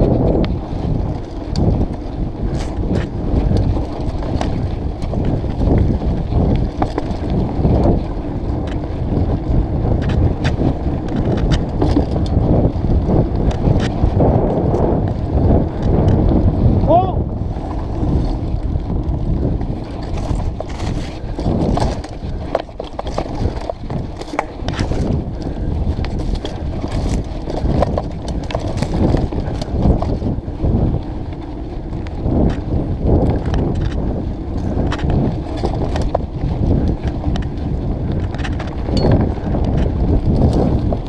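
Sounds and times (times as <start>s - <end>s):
bike rattling and knocking: 0.0s - 41.0s
bike tyres rumbling on dirt: 0.0s - 41.0s
wind rumbling on microphone: 0.0s - 41.0s.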